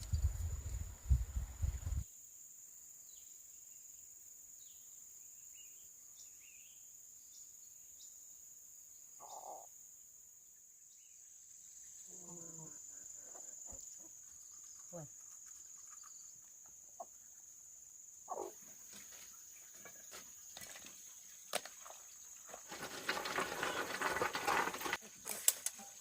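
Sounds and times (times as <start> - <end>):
insects chirring: 0.0 - 26.0
faint bird chirps: 8.9 - 9.8.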